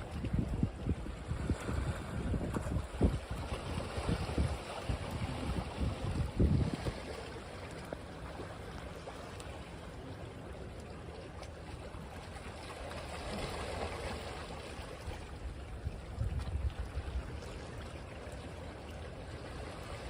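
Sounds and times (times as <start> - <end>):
waves washing on a beach: 0.0 - 11.1.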